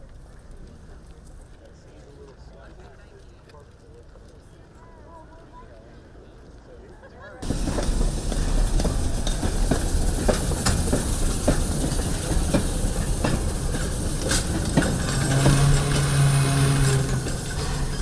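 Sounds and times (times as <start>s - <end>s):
train rumbling on rails: 7.4s - 18.0s
wheels clicking over rail joints: 7.4s - 18.0s.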